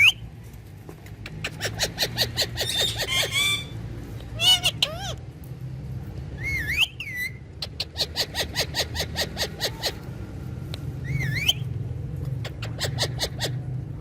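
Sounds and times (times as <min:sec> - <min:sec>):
parrot warbling whistle: 0:11.0 - 0:11.6.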